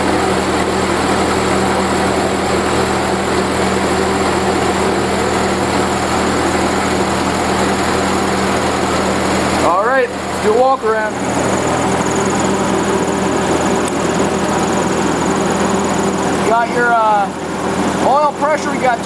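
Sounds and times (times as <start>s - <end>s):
generator engine running: 0.0s - 19.0s.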